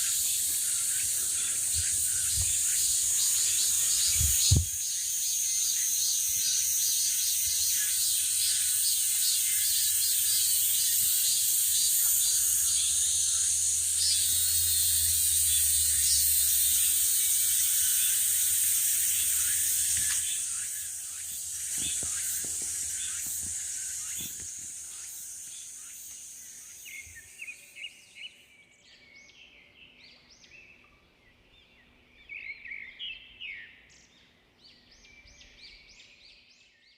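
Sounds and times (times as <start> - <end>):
insects buzzing shrilly: 0.0 - 27.9.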